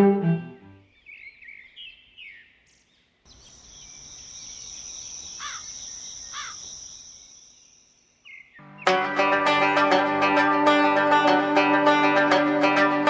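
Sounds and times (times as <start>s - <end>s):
bird chirps: 0.8s - 8.9s
falling bird calls: 0.9s - 8.6s
insect trill: 3.3s - 8.3s.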